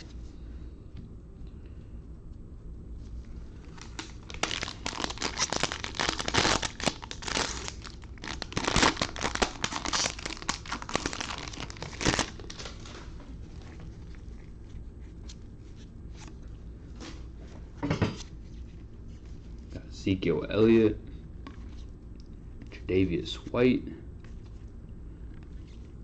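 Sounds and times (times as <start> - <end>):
plastic wrapper tearing and crinkling: 3.6 - 13.0.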